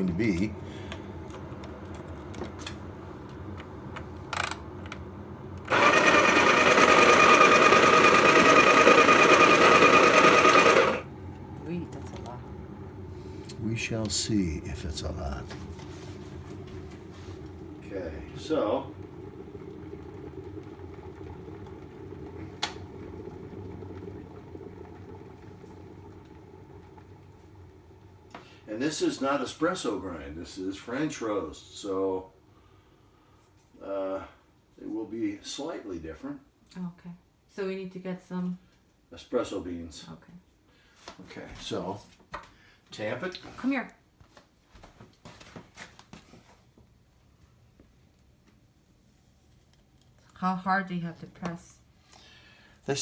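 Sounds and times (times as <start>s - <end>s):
coffee grinder motor humming: 0.0s - 27.7s
coffee grinder whining: 5.6s - 12.4s.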